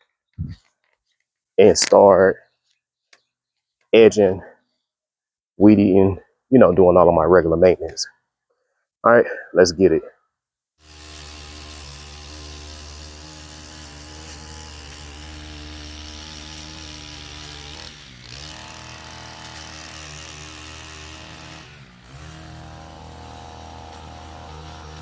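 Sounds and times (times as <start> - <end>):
small gas engine at high throttle: 10.8 - 25.0.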